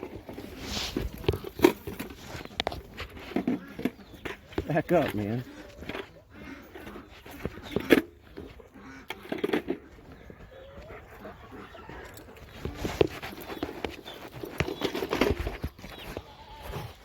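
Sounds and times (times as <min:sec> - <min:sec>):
dog panting: 0:09.9 - 0:14.6.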